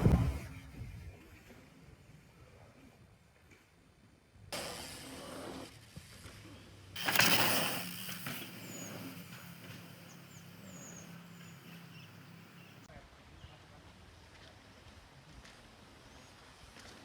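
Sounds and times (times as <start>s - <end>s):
bicycle tyres rushing on dirt: 4.6s - 12.9s.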